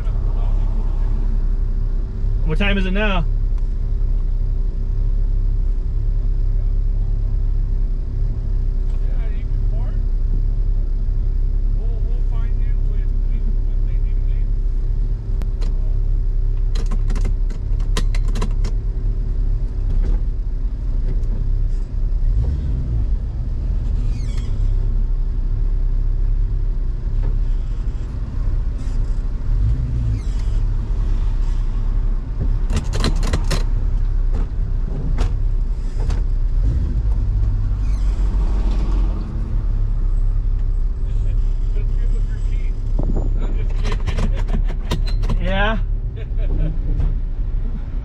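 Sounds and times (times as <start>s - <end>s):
car engine idling: 0.0s - 22.4s, 39.2s - 48.0s
sharp clicks and knocks: 16.6s - 18.8s, 32.4s - 36.3s, 43.6s - 45.4s.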